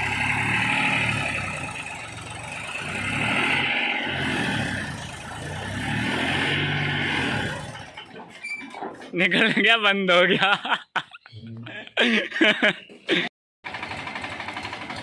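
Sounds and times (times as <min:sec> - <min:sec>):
tractor diesel engine under load: 0:00.0 - 0:08.4, 0:13.1 - 0:15.0.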